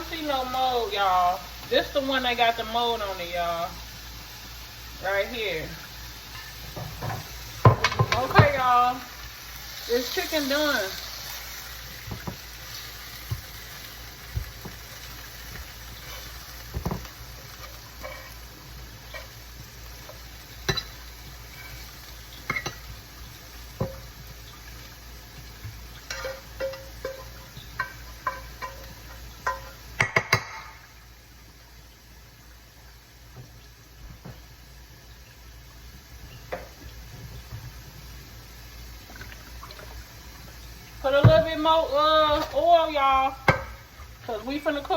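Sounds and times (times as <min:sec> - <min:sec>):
chicken sizzling in a frying pan: 0:00.0 - 0:44.9
utensil tapping against pan: 0:26.1 - 0:30.7.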